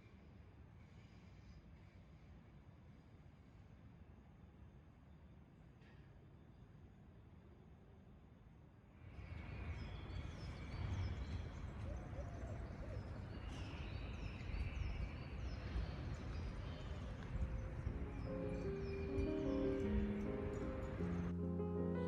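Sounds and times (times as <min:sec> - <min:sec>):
small birds chirping: 0:09.8 - 0:21.4.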